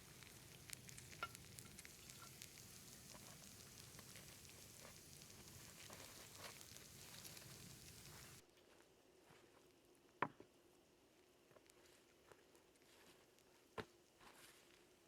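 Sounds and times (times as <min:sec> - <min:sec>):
burning wood crackling: 0:00.0 - 0:08.4
meat skewers sizzling: 0:00.0 - 0:08.4.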